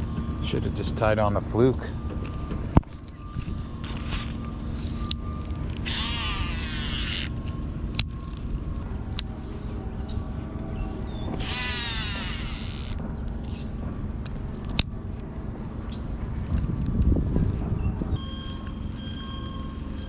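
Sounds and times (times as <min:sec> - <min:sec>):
fishing reel spool whirring: 0:05.7 - 0:08.0, 0:11.2 - 0:13.2
sharp clicks: 0:05.8 - 0:08.1, 0:11.4 - 0:13.0.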